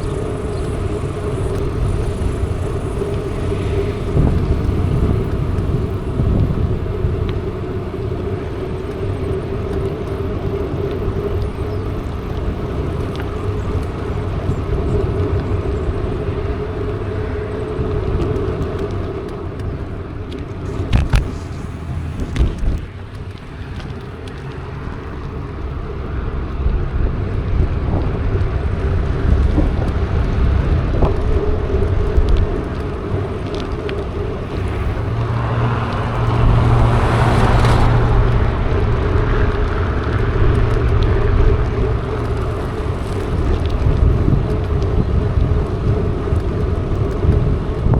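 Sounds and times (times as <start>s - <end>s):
bike tyre and drivetrain noise: 0.0s - 47.9s
wind rumble on microphone: 0.0s - 47.9s.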